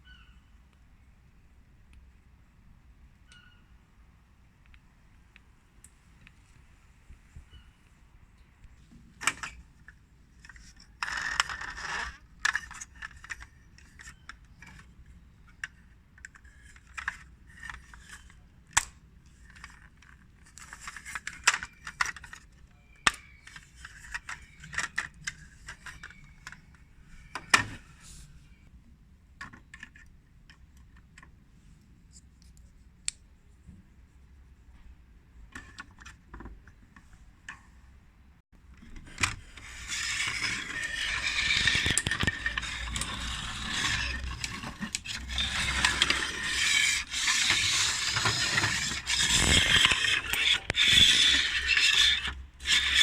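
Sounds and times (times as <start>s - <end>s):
plastic toy parts clicking: 9.2s - 27.7s, 38.8s - 53.0s
scraping rustle: 38.9s - 53.0s.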